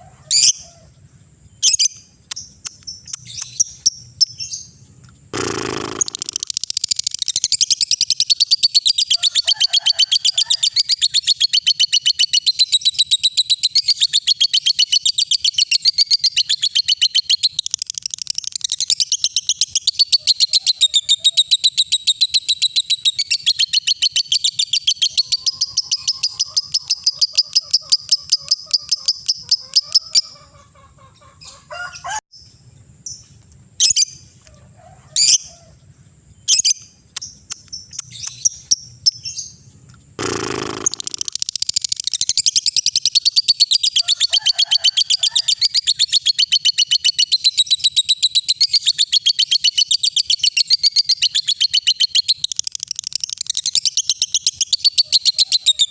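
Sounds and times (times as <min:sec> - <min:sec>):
short sharp bird chirps: 0:01.6 - 0:08.5, 0:36.5 - 0:43.4
lovebird chattering trill: 0:01.6 - 0:31.6, 0:36.5 - 0:55.9.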